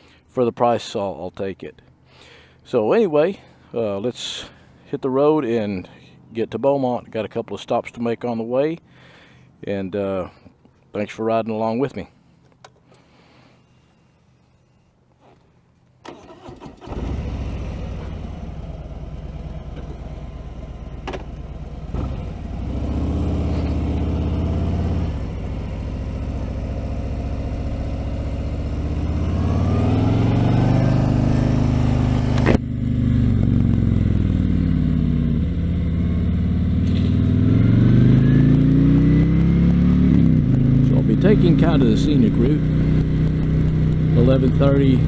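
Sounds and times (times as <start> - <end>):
motorcycle starter cranking: 16.0 - 17.4
motorcycle engine revving: 16.2 - 45.0.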